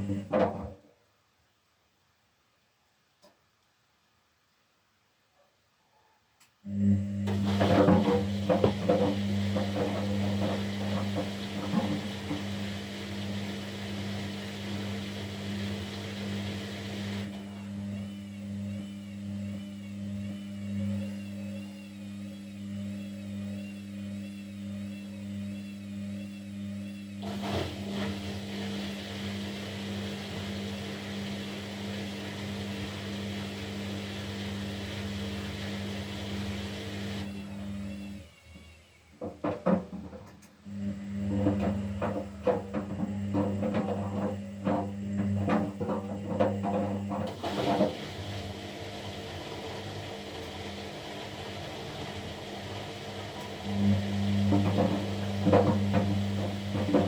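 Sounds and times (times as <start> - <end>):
washing machine motor hum: 0.0 - 0.8, 6.7 - 57.0.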